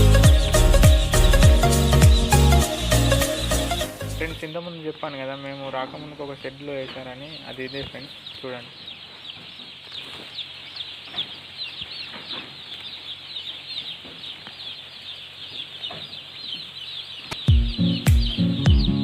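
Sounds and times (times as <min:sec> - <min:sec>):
music with heavy beat: 0:00.0 - 0:04.2, 0:17.5 - 0:19.0
chicks peeping: 0:00.0 - 0:19.0.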